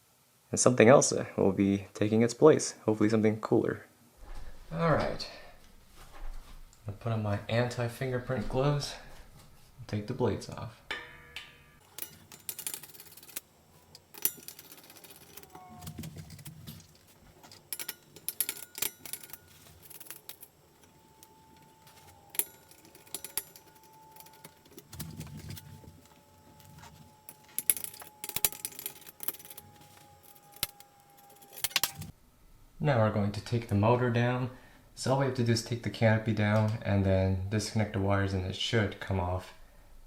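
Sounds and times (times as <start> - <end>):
metal screws and hardware clinking: 11.8 - 32.1.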